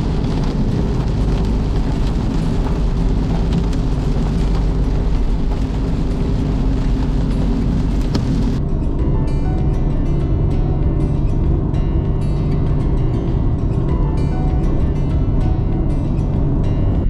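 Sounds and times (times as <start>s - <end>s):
heavy rain falling: 0.0s - 8.6s
deep rumble: 0.0s - 17.0s.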